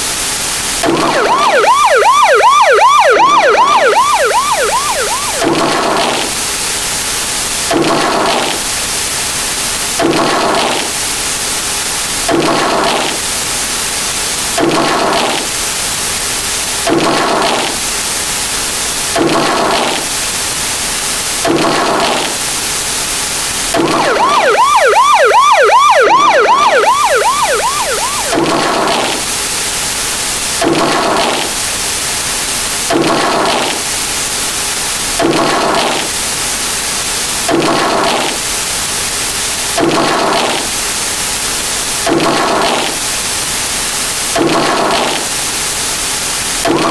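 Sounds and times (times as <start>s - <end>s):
wailing siren: 0.8s - 6.4s, 23.8s - 29.5s.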